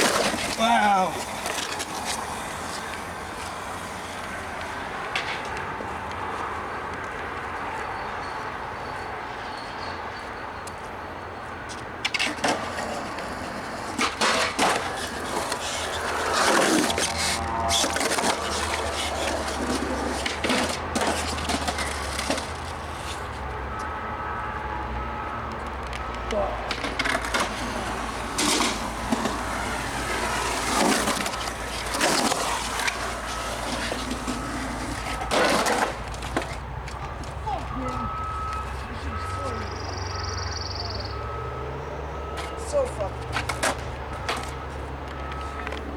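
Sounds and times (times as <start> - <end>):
skateboard clacks: 0.0 - 6.2, 11.7 - 23.2, 25.5 - 38.9, 42.4 - 45.9
skateboard wheels rolling on concrete: 0.0 - 45.9.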